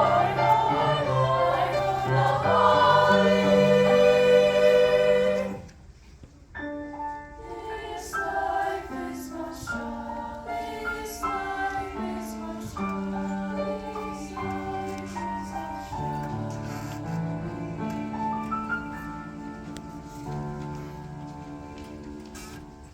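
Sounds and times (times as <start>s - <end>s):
choir holding a sung chord: 0.0s - 5.7s, 7.4s - 22.5s
piano playing slow notes: 9.6s - 22.9s.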